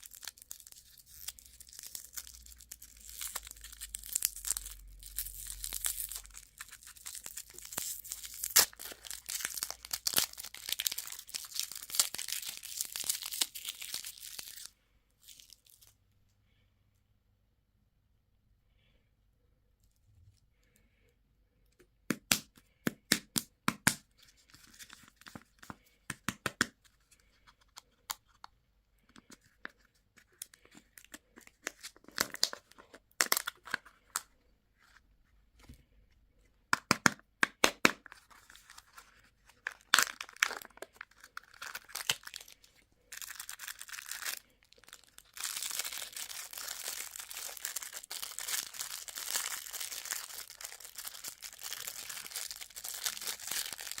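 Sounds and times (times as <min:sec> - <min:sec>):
plastic wrapper crackling and tearing: 0:00.0 - 0:16.0, 0:29.1 - 0:34.3, 0:36.8 - 0:54.0.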